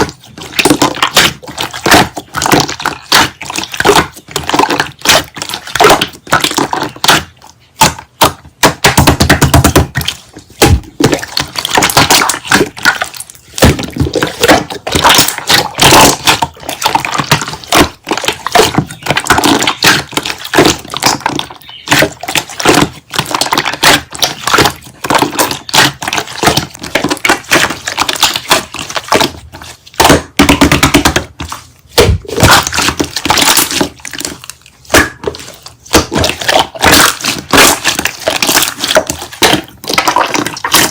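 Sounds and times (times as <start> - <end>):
slime squished by hand: 0.0 - 40.9.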